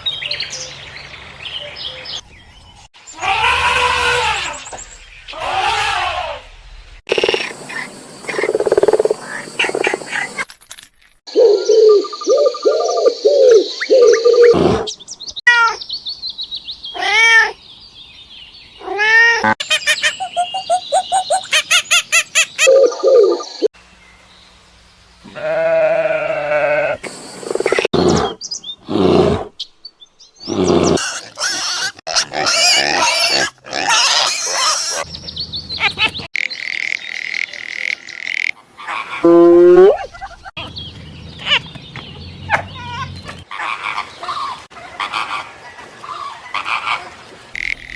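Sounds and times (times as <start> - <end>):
animal calls: 38.8 - 40.6.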